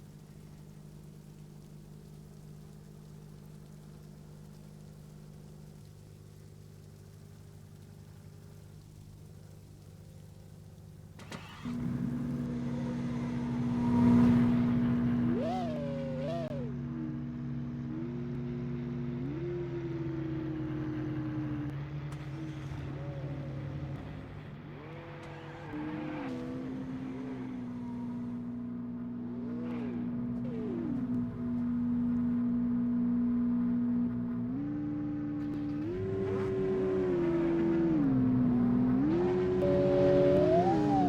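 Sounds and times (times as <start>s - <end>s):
car engine idling: 0.0s - 25.3s
engine throttle blips: 0.0s - 41.0s.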